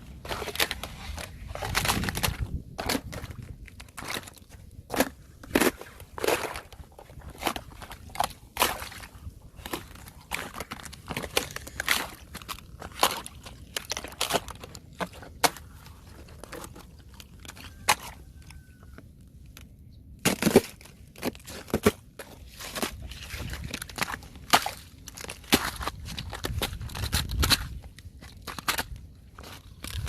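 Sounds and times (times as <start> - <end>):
ice cracking and crunching: 0.0 - 19.6, 20.2 - 30.0.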